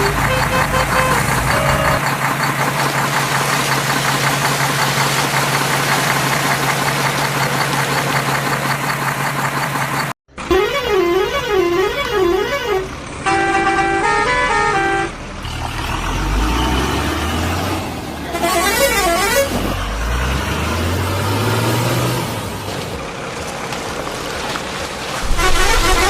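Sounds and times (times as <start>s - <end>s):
horn playing stepped notes: 0.0s - 2.0s, 10.5s - 15.1s, 25.2s - 26.0s
warbling vehicle horn: 0.0s - 2.0s, 10.4s - 15.2s, 18.3s - 19.7s, 25.2s - 26.0s
low engine rumble: 0.0s - 16.4s, 22.3s - 26.0s.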